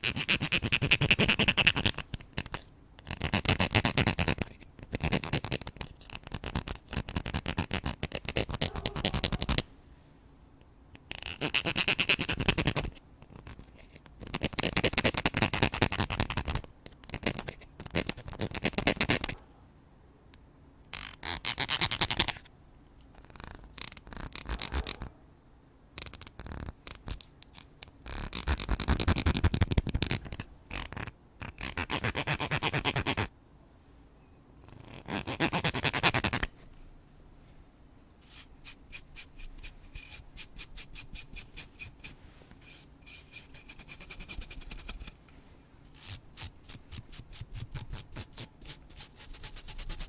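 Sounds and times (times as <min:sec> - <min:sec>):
crickets chirring: 0:00.0 - 0:50.0
scratching and brushing: 0:35.5 - 0:50.0.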